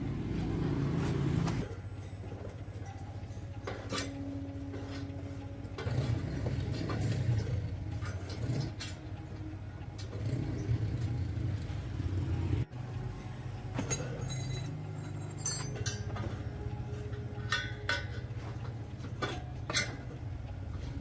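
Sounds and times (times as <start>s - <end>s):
low mechanical hum: 0.0s - 21.0s
metal tools clinking: 1.6s - 9.2s, 13.7s - 20.2s.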